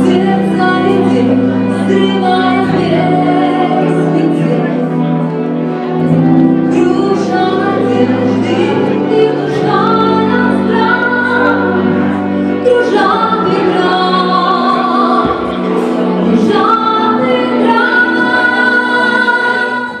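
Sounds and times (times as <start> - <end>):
woman singing: 0.0 - 4.9, 6.7 - 20.0
instrumental accompaniment: 15.0 - 17.9.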